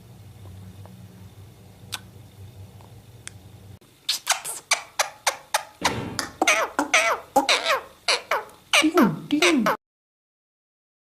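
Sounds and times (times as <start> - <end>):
low steady hum: 0.0 - 9.8
parrot harsh squawks: 4.1 - 9.8.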